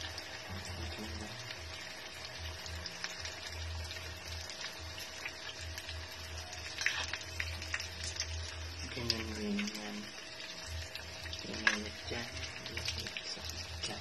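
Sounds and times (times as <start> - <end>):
food sizzling in oil: 0.0 - 14.0.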